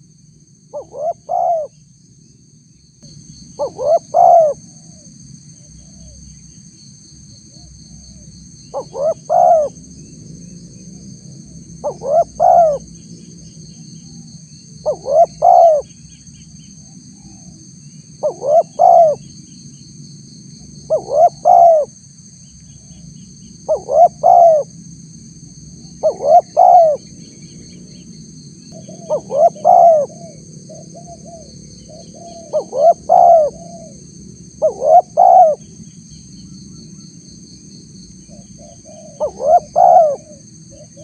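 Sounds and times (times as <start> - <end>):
high-pitched ringing drone: 0.0 - 41.0
dove cooing: 0.7 - 1.8, 3.6 - 5.0, 5.7 - 6.2, 7.5 - 9.8, 11.6 - 13.0, 14.0 - 15.9, 18.2 - 19.3, 20.9 - 22.0, 23.6 - 24.7, 25.8 - 27.1, 28.7 - 35.6, 38.3 - 41.0.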